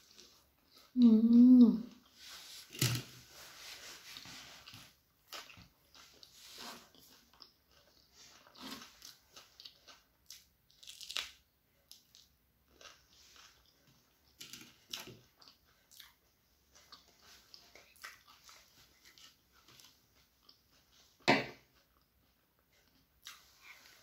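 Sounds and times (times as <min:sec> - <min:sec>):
chewing and crunching: 0:00.0 - 0:01.1, 0:04.0 - 0:24.0
mouth sounds: 0:01.0 - 0:02.0.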